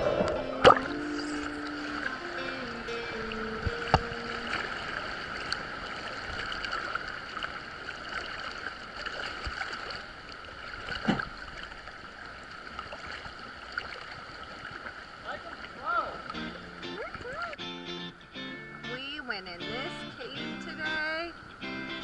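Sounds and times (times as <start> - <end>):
sea water surging in a cave: 0.0 - 16.4.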